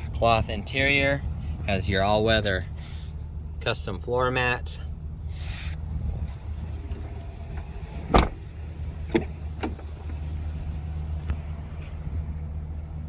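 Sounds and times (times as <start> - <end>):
truck engine idling: 0.0 - 13.0
sharp clicks and knocks: 7.6 - 10.2.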